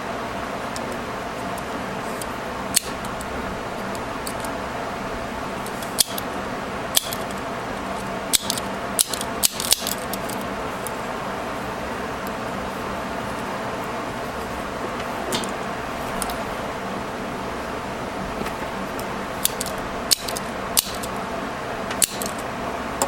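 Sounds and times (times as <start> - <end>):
steady background hum: 0.0 - 23.0
staple remover metal clicks: 8.3 - 10.4, 22.0 - 22.4.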